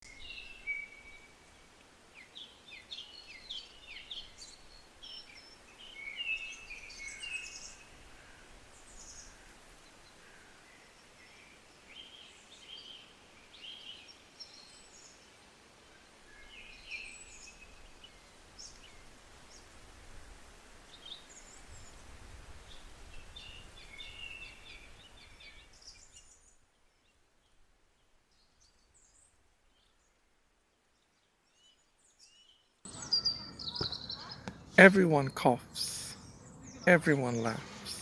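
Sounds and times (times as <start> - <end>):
faint birds chirping: 32.9 - 38.0.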